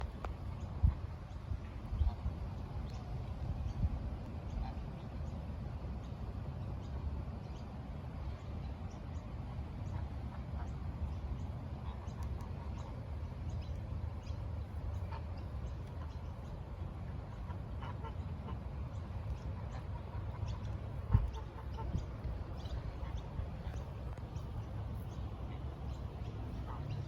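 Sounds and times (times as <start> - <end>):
steady low rumble: 0.0 - 27.0
geese honking: 14.9 - 27.0.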